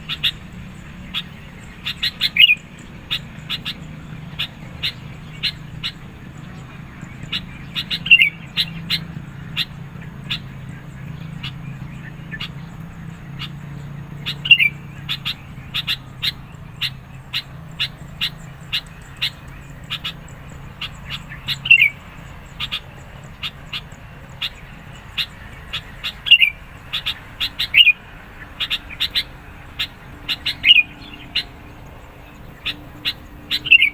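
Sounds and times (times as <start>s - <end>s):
bird calling sharp chips: 0.0s - 33.9s.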